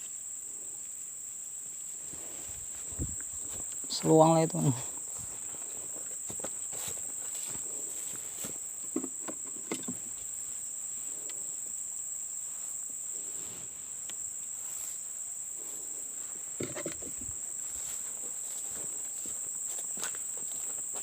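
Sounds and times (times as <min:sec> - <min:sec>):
high-pitched insect chorus: 0:00.0 - 0:21.0
handling knocks and rustles: 0:08.2 - 0:10.3, 0:16.6 - 0:18.8.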